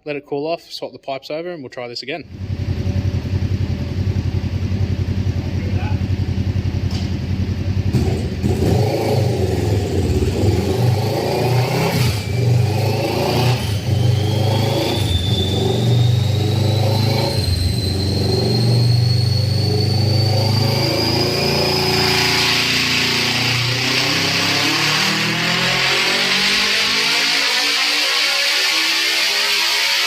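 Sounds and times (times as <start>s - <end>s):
motorcycle engine on a dyno: 2.2s - 30.0s
whine rising in pitch: 8.9s - 30.0s.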